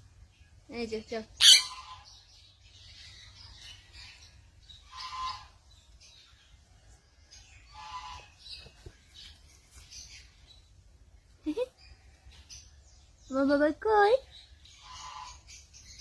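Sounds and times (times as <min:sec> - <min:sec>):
birds chirping: 0:00.0 - 0:16.0
loud bird calls: 0:01.4 - 0:06.5, 0:07.3 - 0:10.6, 0:14.3 - 0:16.0.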